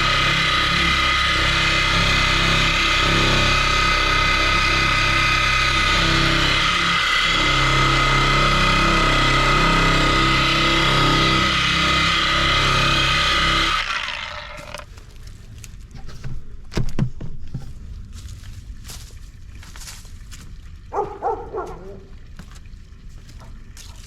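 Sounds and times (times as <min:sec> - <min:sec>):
power tool motor whining: 0:00.0 - 0:14.9.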